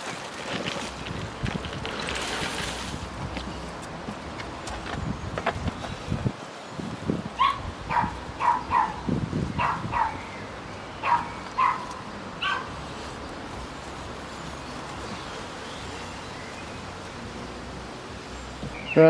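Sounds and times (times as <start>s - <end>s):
dog barking: 7.4s - 10.3s, 11.0s - 12.8s.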